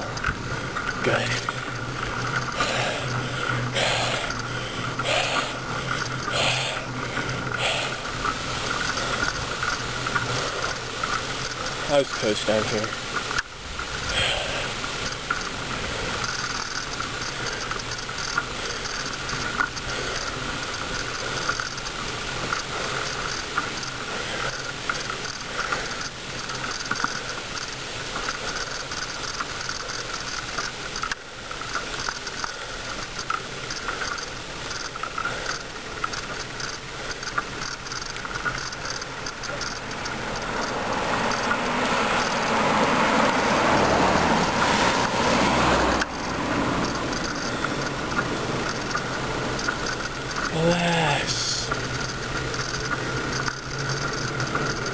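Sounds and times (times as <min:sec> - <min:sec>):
wind and tyre noise: 0:00.0 - 0:50.6, 0:51.7 - 0:54.9
bicycle freewheel ticking: 0:00.1 - 0:50.6, 0:51.7 - 0:54.9
car approaching: 0:35.1 - 0:50.6, 0:51.7 - 0:54.9.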